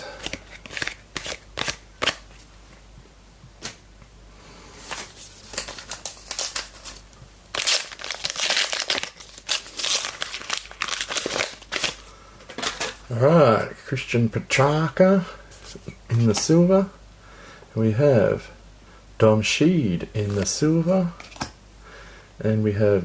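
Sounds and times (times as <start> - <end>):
wrapper tearing and crinkling: 5.4 - 12.0.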